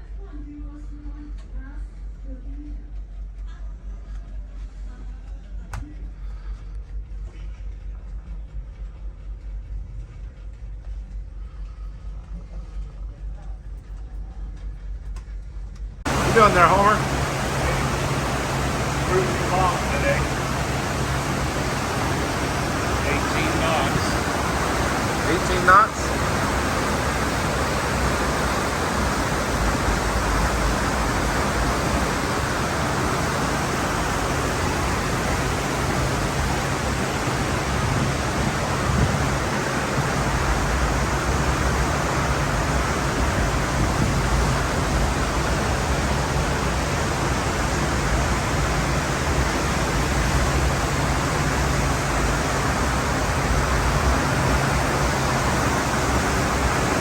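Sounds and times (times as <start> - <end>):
faint low hum: 0.0 - 57.0
rushing wind and water: 16.0 - 57.0.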